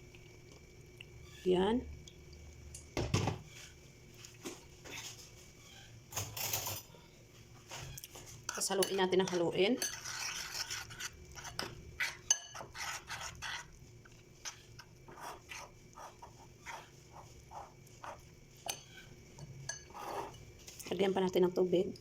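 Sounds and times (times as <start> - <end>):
spoons scraping in a bowl: 8.2 - 13.8, 14.4 - 20.6.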